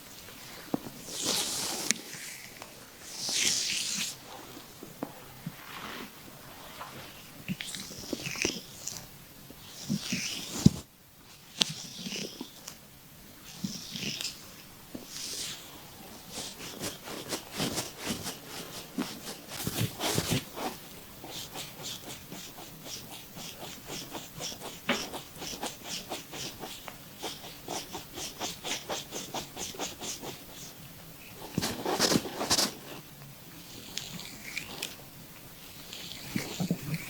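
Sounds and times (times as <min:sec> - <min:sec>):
stomach rumbling and gurgling: 0:36.0 - 0:37.0.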